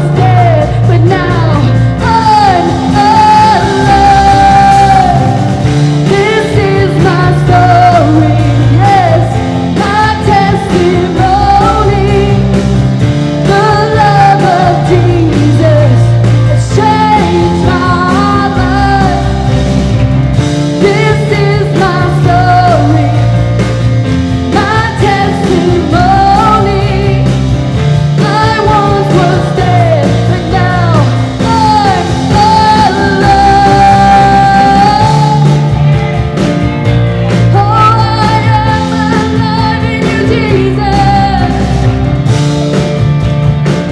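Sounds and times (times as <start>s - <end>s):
person singing lead: 0.0s - 12.6s, 28.1s - 35.9s
pulsing bass line: 0.0s - 43.9s
rock band playing: 0.0s - 43.9s.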